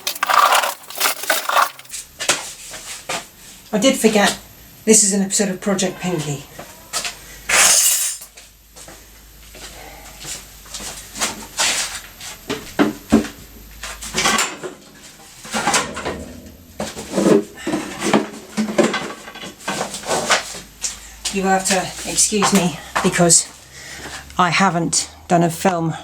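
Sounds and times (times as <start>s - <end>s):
metal parts and tools clinking: 0.0s - 1.9s.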